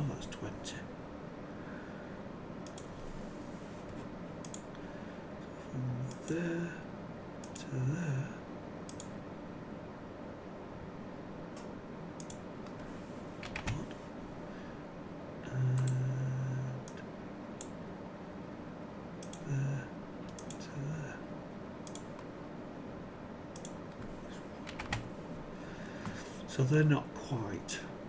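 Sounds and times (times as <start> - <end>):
keyboard and mouse clicks: 2.6 - 2.9, 4.4 - 4.7, 8.9 - 9.1, 11.6 - 14.0, 15.8 - 16.0, 19.2 - 19.5, 20.2 - 20.6, 21.8 - 22.3, 23.6 - 25.1.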